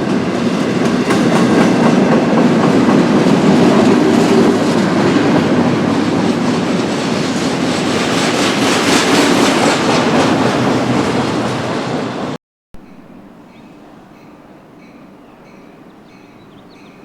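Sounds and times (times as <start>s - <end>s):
freight train wheels clickety-clack: 0.0s - 12.4s.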